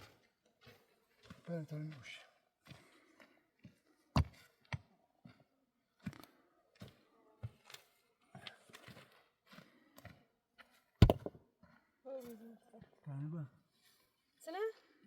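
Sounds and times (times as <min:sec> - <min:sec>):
irregular clicks and knocks: 0:11.0 - 0:11.4.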